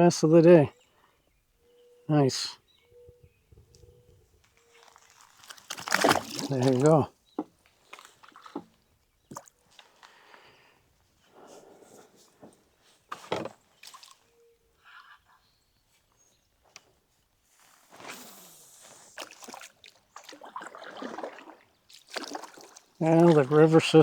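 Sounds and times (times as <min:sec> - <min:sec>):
water sloshing and splashing: 0:04.6 - 0:10.1, 0:13.1 - 0:14.3, 0:19.0 - 0:24.0.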